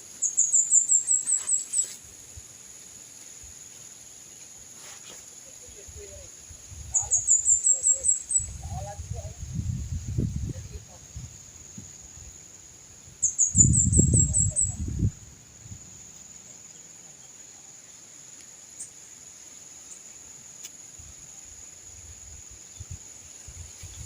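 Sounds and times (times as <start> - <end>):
forest insects droning: 0.0 - 24.0
wind rumbling on microphone: 5.8 - 7.6, 8.3 - 16.0, 21.9 - 24.0
high bird chirps: 13.2 - 14.9.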